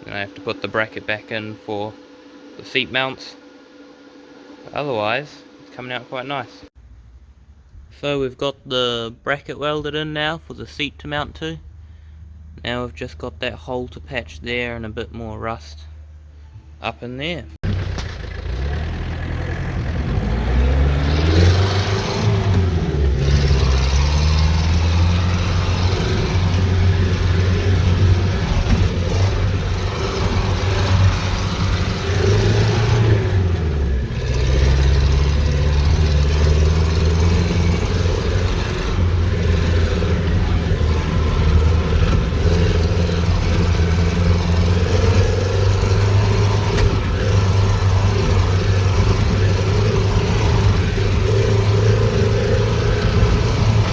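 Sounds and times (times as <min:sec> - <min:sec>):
vehicle engine revving: 0:17.6 - 0:53.9.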